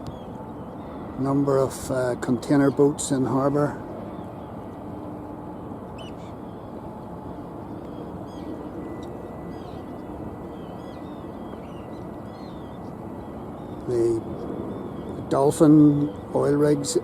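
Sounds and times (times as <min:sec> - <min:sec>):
harbour background rumble: 0:00.0 - 0:17.0
terns calling: 0:06.0 - 0:06.8, 0:07.7 - 0:17.0.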